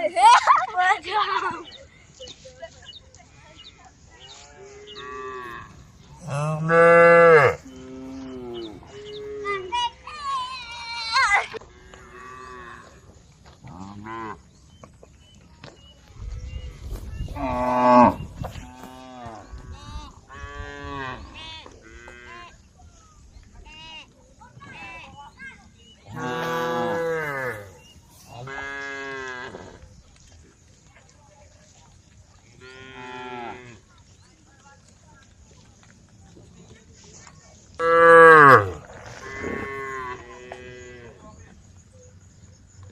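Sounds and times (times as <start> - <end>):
cattle mooing: 4.9 - 9.6, 26.1 - 27.7.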